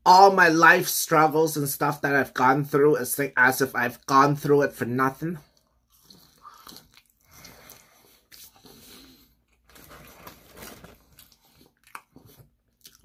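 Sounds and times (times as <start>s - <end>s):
crunchy chewing: 5.5s - 13.0s.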